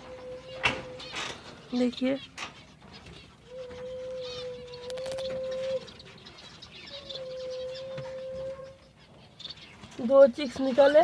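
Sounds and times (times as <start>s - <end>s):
caged birds chirping faintly: 0.0s - 11.0s.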